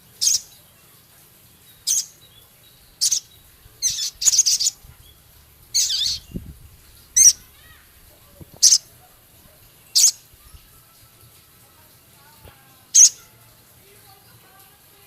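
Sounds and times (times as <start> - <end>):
songbird high-pitched calls: 0.0 - 0.8, 1.6 - 7.8, 8.4 - 9.1, 9.7 - 11.4, 12.9 - 13.4.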